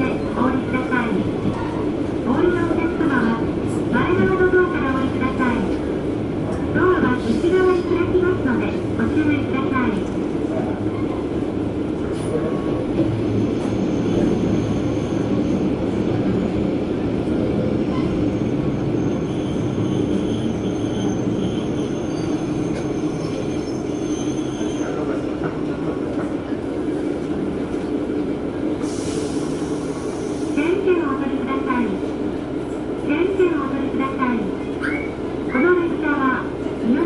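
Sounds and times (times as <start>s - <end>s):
train engine and wheels rumbling: 0.0s - 37.0s
high wheel squeal: 17.9s - 25.1s.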